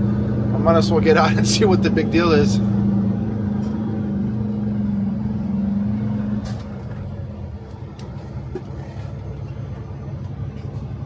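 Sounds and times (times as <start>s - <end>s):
tow truck idling: 2.7s - 11.0s.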